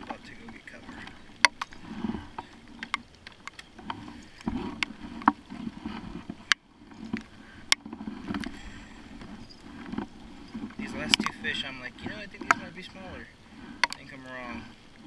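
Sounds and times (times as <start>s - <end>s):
raindrops tapping on plastic: 0.0s - 9.3s, 10.7s - 14.7s
water sloshing against hull: 0.0s - 15.0s.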